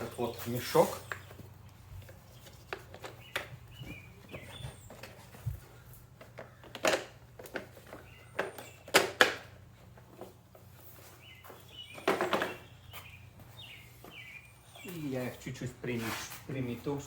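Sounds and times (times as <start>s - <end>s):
bird chirping: 0.0s - 6.8s, 7.7s - 9.2s, 11.0s - 15.7s
plastic parts clicking and knocking: 6.2s - 9.6s.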